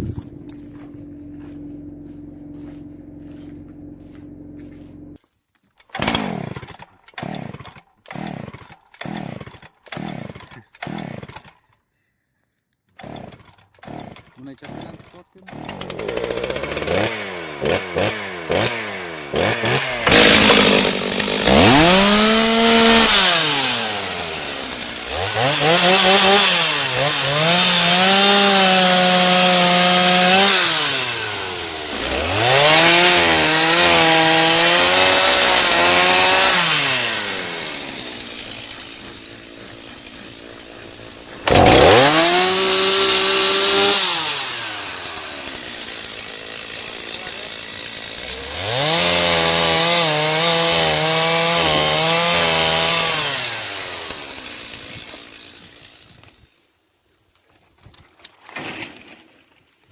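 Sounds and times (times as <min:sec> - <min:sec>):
angle grinder whining: 0:15.6 - 0:56.4.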